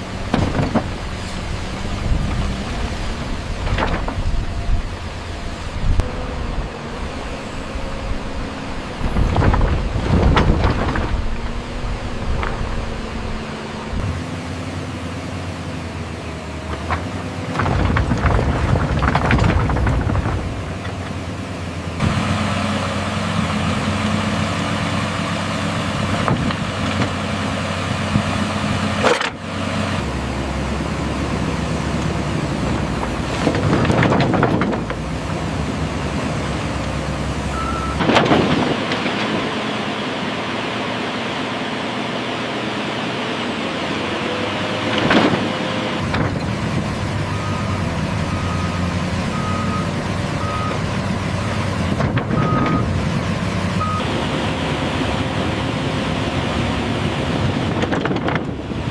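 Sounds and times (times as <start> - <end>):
diesel excavator running: 0.0 - 58.9
reversing alarm beeping: 37.5 - 38.0, 47.3 - 50.8, 52.4 - 52.9, 53.8 - 54.1.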